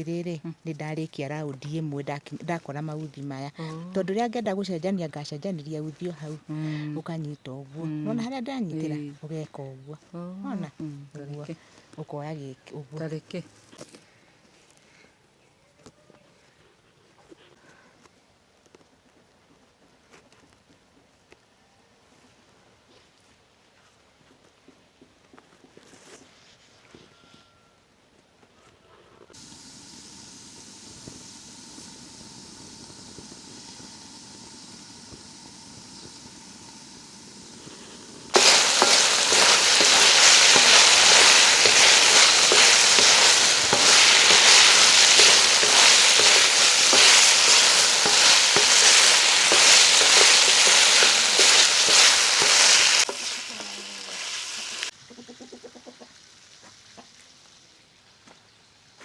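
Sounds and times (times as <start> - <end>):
food sizzling in a pan: 29.4 - 55.0.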